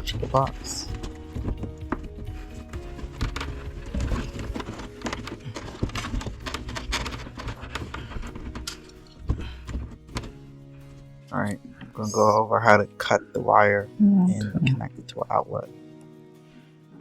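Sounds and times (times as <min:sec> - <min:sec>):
cable knocking in electrical box: 0:00.0 - 0:10.4
background music: 0:00.0 - 0:17.0.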